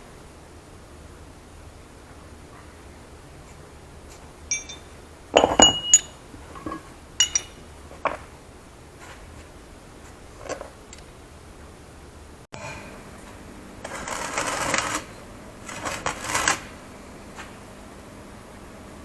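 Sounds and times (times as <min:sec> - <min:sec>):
metal clinking and knocking: 0:04.5 - 0:08.2.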